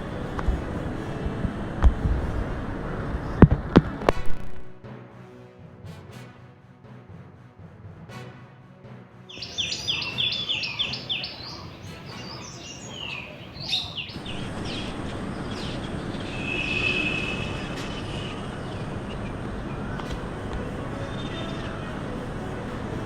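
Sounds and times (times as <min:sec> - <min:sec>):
outdoor background noise: 0:00.0 - 0:04.9, 0:09.3 - 0:23.0
music theme: 0:00.0 - 0:23.0
small birds chirping: 0:09.3 - 0:22.0.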